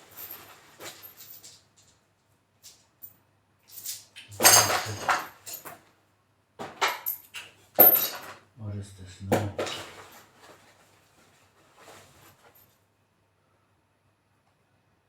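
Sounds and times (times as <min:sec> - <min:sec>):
metal tools clinking and clattering: 0:00.0 - 0:02.0, 0:03.7 - 0:05.8, 0:06.8 - 0:08.4.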